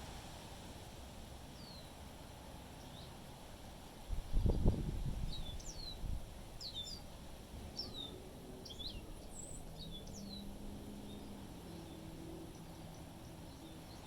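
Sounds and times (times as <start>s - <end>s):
low rumble of wind: 0.0s - 14.0s
songbirds chirping: 1.5s - 2.0s, 4.3s - 14.0s.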